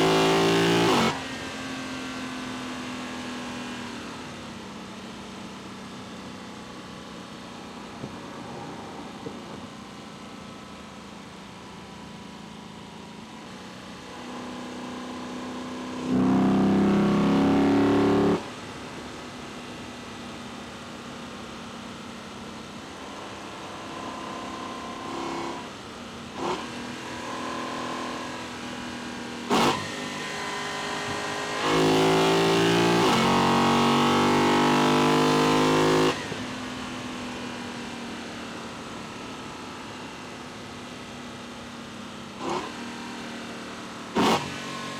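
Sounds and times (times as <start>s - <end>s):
engine revving under acceleration: 16.0s - 18.5s, 29.5s - 36.4s, 44.2s - 44.8s.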